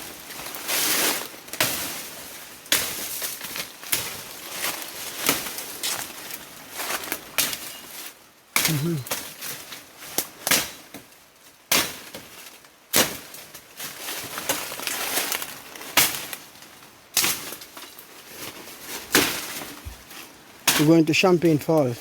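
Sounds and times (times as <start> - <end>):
crunching and rustling in brush: 0.0 - 22.0.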